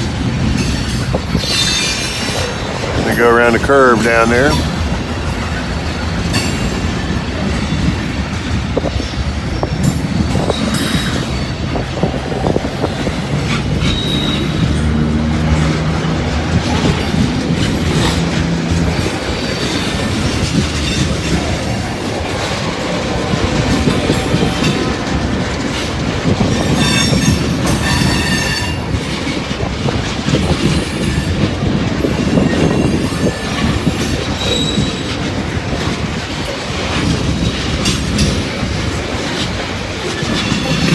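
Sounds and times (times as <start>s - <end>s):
train wheels clattering on rails: 0.0s - 40.9s
wheel flange squeal: 0.6s - 2.7s, 13.3s - 15.1s, 32.1s - 35.2s.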